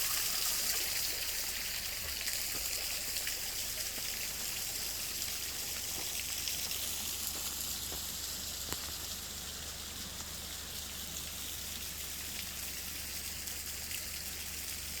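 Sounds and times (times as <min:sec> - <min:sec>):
stream water rushing: 0:00.0 - 0:08.6.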